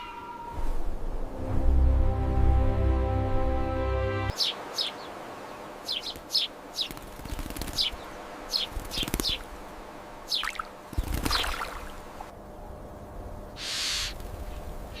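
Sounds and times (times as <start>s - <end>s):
outdoor ambience hiss: 0.0s - 15.0s
birds chirping: 4.3s - 9.6s, 10.2s - 15.0s.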